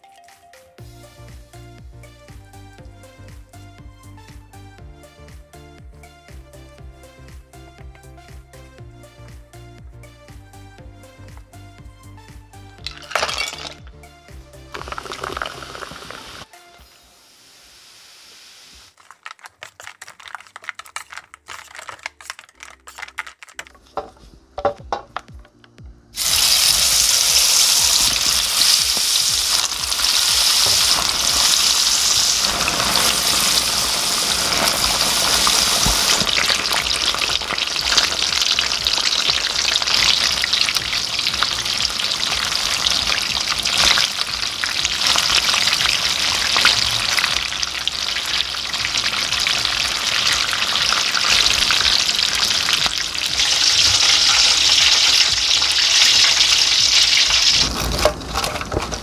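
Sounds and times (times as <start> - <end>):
peppers frying in hot oil: 14.7 - 16.5, 17.2 - 23.5, 26.2 - 59.0.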